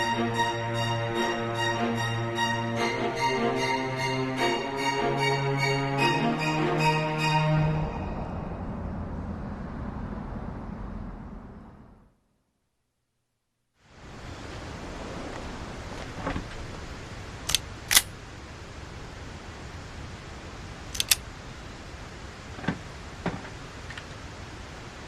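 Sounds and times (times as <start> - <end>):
steady background hiss: 13.8 - 25.0
sharp mechanical clicks: 17.5 - 18.1, 20.9 - 21.2
soft knocks: 22.6 - 23.5.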